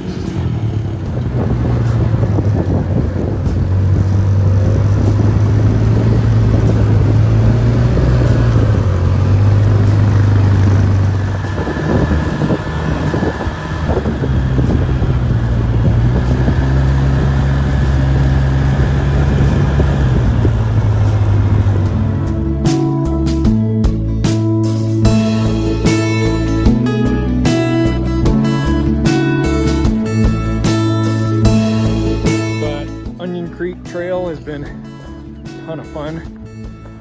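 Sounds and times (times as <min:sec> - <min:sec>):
wind on microphone: 0:00.0 - 0:22.5
atv engine running: 0:00.0 - 0:24.4, 0:25.0 - 0:37.0.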